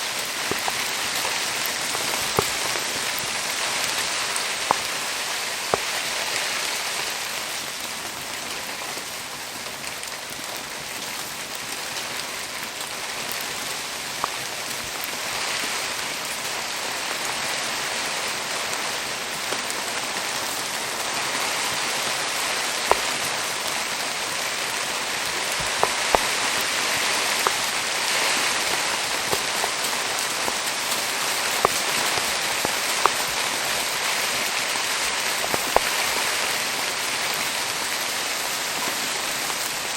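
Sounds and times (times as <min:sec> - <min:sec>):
sharp pops: 0:00.0 - 0:15.4, 0:22.6 - 0:36.5
steady rain hissing: 0:00.0 - 0:39.9.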